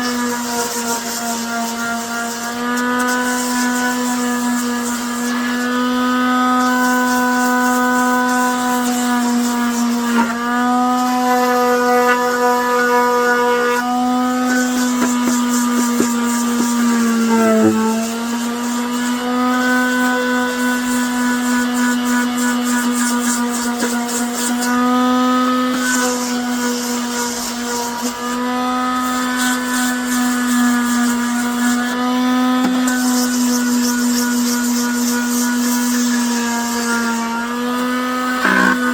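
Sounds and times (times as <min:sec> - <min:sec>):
rotary tool motor humming: 0:00.0 - 0:38.9.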